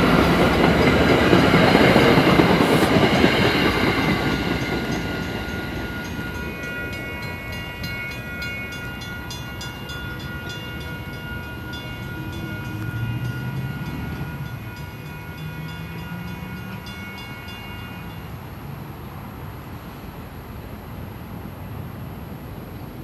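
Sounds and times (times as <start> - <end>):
train wheels clicking over joints: 0.0 - 7.0
low train rumble: 0.0 - 23.0.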